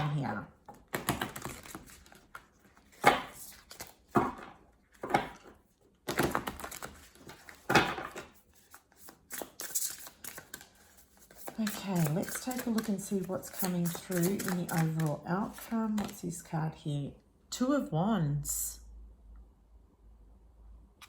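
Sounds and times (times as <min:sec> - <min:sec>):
cards rustling: 0:00.6 - 0:16.4.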